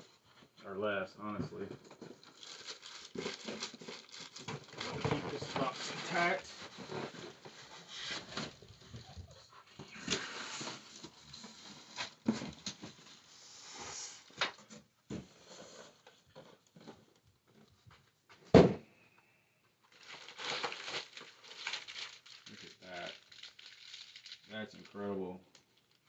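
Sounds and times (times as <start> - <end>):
packaging rustling and knocking: 1.6 - 13.2.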